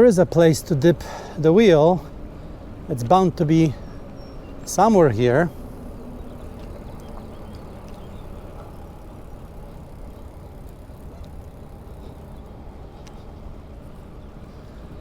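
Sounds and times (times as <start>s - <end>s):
wind and bicycle rolling noise: 0.0s - 15.0s
faint ticks: 5.6s - 13.9s.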